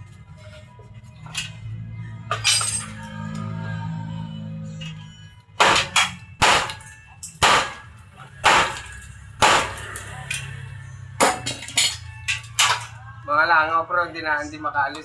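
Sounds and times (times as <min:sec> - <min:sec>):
sharp ringing bangs: 0:05.6 - 0:10.2.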